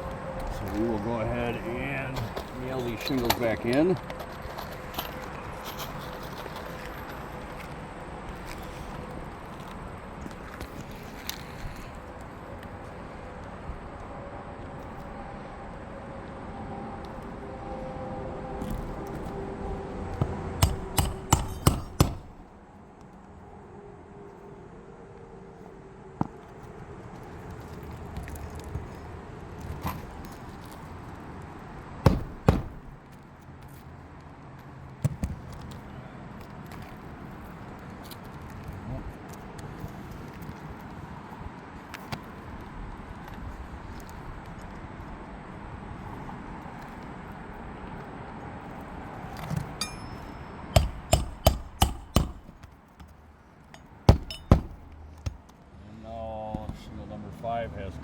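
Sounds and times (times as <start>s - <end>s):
outdoor background noise: 0.0s - 58.0s
nails struck into roof shingles: 20.2s - 22.5s, 32.0s - 33.1s, 50.8s - 53.2s, 53.8s - 55.5s.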